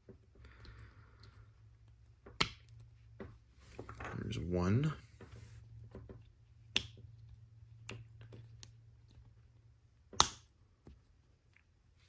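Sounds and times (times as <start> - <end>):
sharp plastic snap: 10.1 - 10.5.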